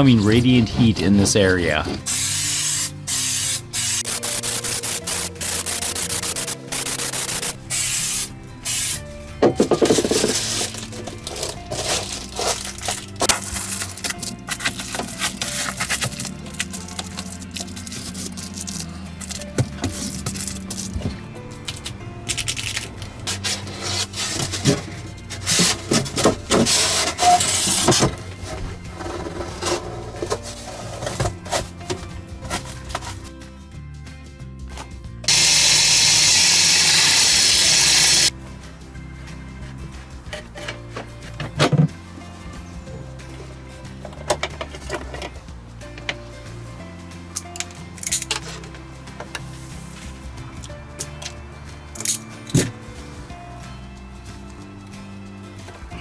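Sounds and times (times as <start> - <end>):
background music: 0.0 - 56.0
aerosol spray can hissing: 2.0 - 9.0, 35.3 - 38.3
rubbing and scraping strokes: 23.2 - 31.8.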